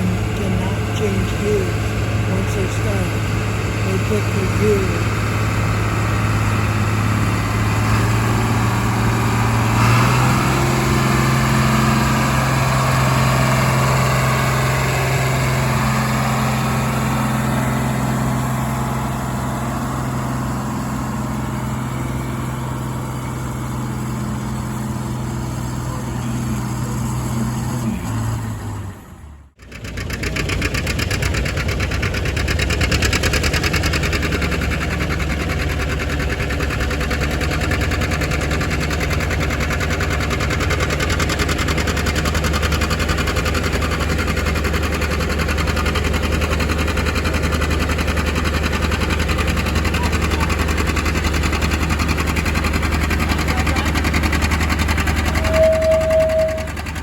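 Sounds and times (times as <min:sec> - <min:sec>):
engine with fast even beat: 0:00.0 - 0:27.8, 0:29.6 - 0:57.0
engine idling: 0:00.0 - 0:57.0.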